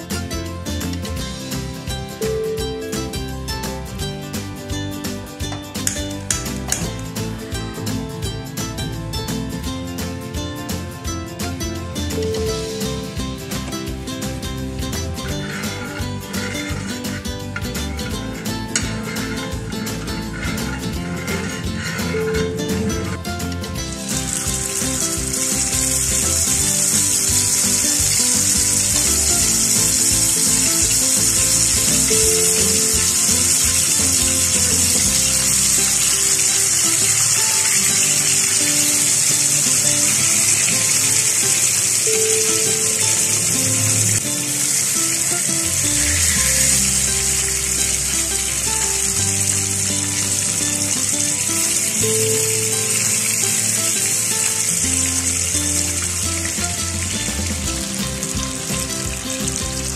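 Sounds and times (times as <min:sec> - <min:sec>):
background music: 0:00.0 - 0:59.9
fish sizzling in hot oil: 0:23.9 - 0:59.9.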